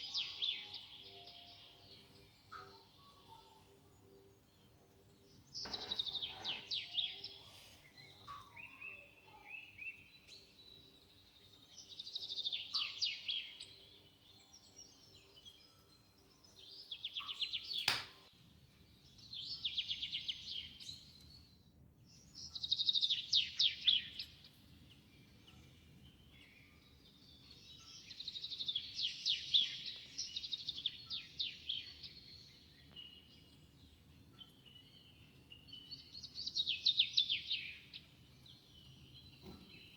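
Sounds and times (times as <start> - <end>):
sharp click: 17.8 - 18.2.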